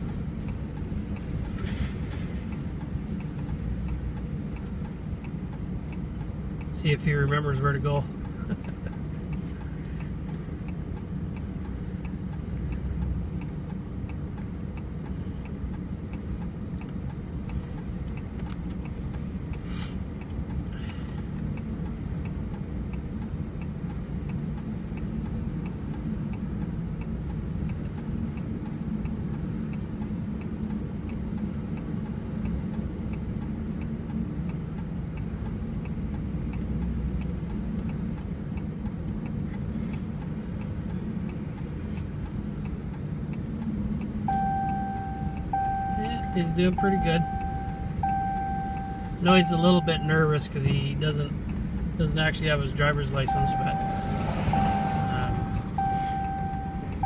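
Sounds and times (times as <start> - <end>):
engine and road rumble: 0.0 - 57.0
indicator clicking: 44.3 - 50.7, 53.2 - 57.0.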